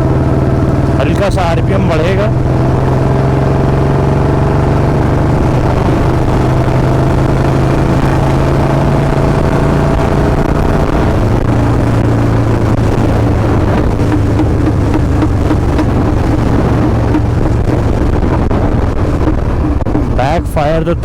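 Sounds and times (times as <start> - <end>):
loud motorcycle exhaust: 0.0 - 21.0.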